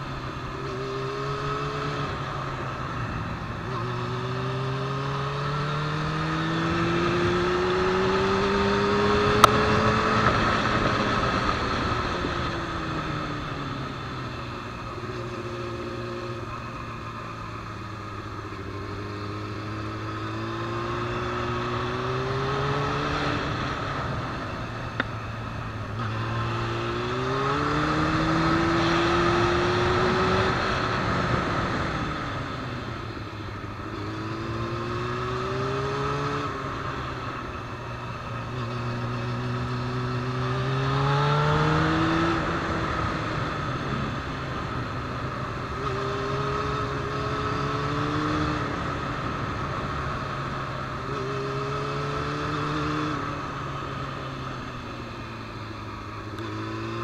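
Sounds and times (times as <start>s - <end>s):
motorcycle engine revving: 0.0s - 57.0s
wind rushing over microphone: 5.5s - 16.5s.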